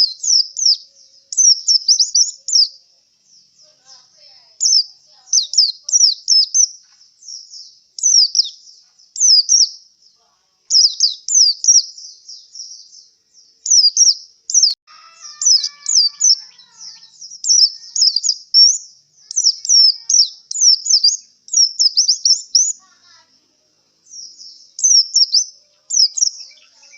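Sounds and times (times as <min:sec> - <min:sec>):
bird chirping high and sharp: 0:00.0 - 0:09.8, 0:10.7 - 0:23.2, 0:24.0 - 0:26.9.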